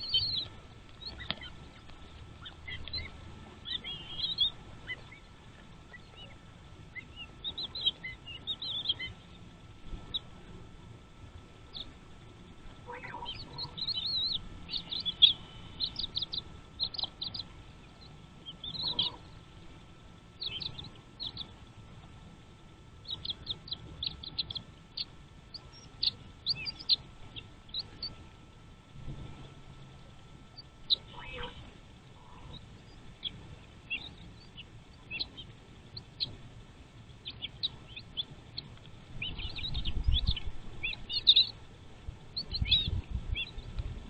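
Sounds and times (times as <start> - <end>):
lower louder bird call: 0.0 - 5.3, 12.8 - 19.4, 30.6 - 36.3
small birds chirping: 0.0 - 22.1, 22.9 - 28.5, 29.2 - 36.4, 37.0 - 44.0.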